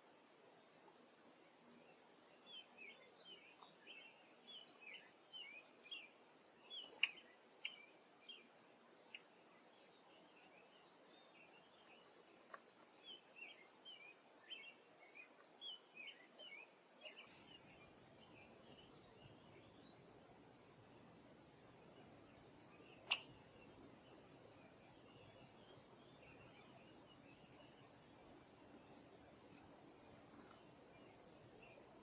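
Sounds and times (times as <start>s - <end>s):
small birds chirping: 1.9s - 32.0s.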